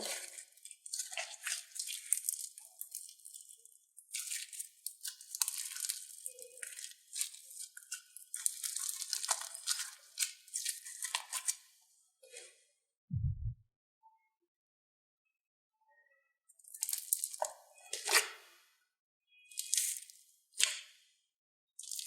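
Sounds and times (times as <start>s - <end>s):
low thump: 13.1s - 13.6s.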